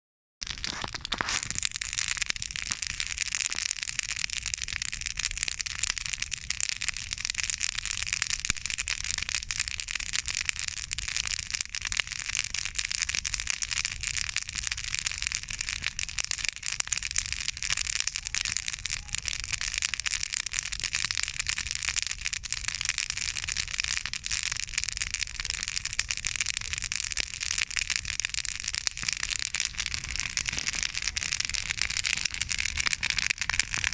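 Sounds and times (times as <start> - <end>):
campfire crackling and snapping: 0.4 - 33.9.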